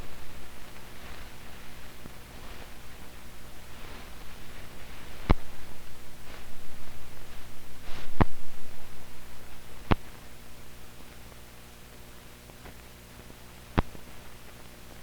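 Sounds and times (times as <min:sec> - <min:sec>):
film soundtrack hiss and hum: 0:00.0 - 0:15.0.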